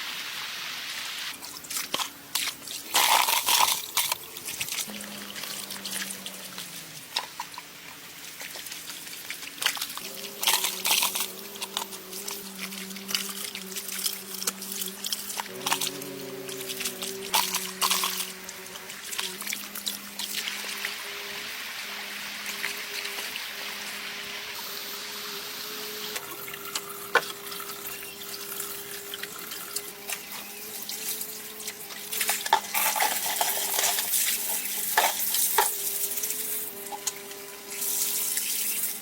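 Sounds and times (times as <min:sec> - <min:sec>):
running splashing water: 0:01.4 - 0:24.0.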